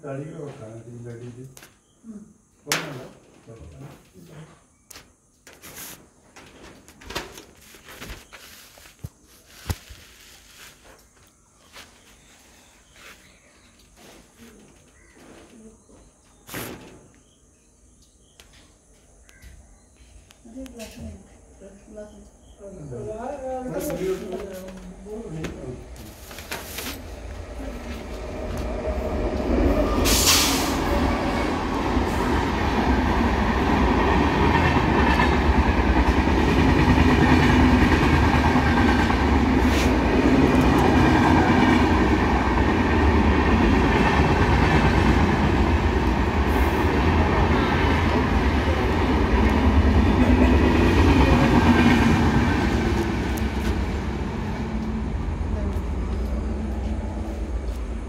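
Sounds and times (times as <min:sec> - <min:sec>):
train rumbling with rattling wheels: 0:23.8 - 0:58.0
sharp burst of noise: 0:29.9 - 0:31.2.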